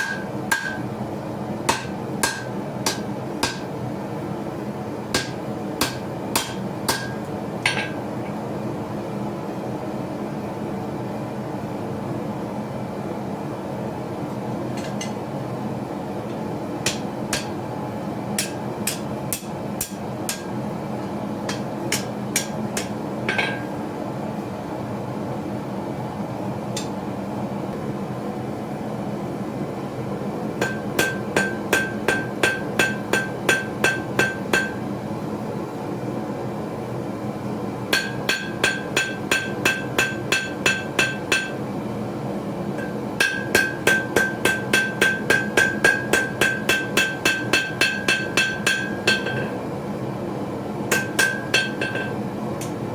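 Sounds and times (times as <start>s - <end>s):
forging hammer striking anvil: 0.0s - 0.9s, 1.7s - 3.7s, 5.2s - 8.0s, 16.9s - 17.6s, 18.4s - 20.6s, 21.5s - 23.8s, 30.6s - 34.8s, 37.9s - 41.6s, 42.8s - 49.6s, 50.9s - 52.8s
steady hum: 14.5s - 52.9s.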